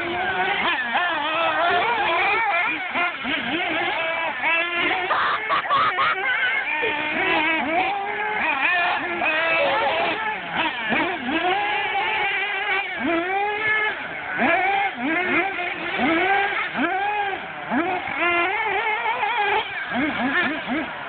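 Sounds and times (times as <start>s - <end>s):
rc car motor revving: 0.0s - 21.0s.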